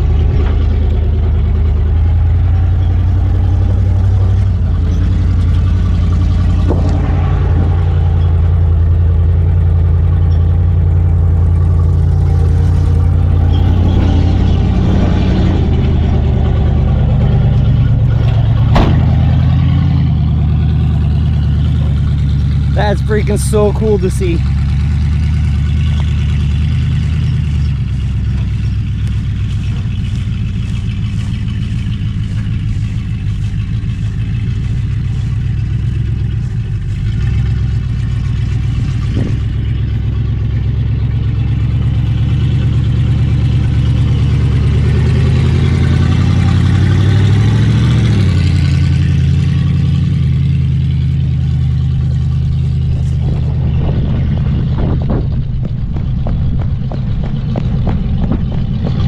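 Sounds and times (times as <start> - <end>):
truck engine driving: 0.0 - 59.0.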